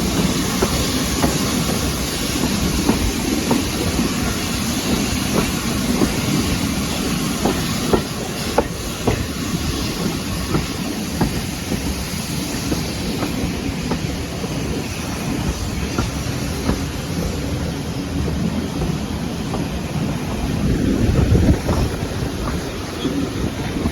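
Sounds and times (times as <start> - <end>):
train rumbling along track: 0.0 - 23.9
wheels clicking over rail joints: 12.6 - 17.6.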